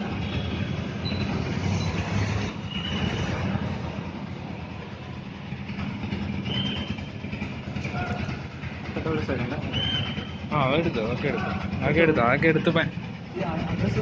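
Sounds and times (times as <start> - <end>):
low engine rumble: 0.0 - 14.0
traffic noise: 0.0 - 14.0.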